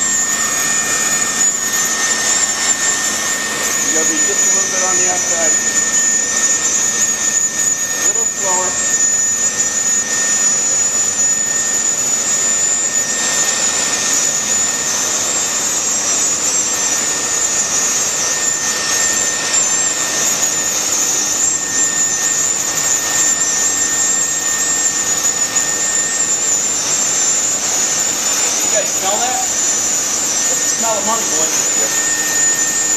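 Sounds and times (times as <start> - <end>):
hot-air blower hissing and whistling: 0.0 - 32.9.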